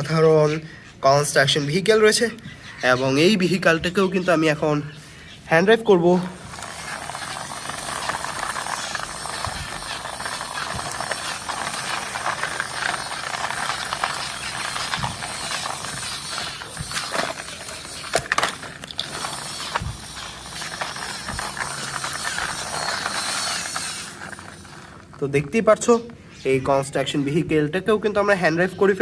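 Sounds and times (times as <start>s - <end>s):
toy vehicle rattling over ground: 6.0s - 26.0s
sharp plastic clacks: 6.5s - 25.6s.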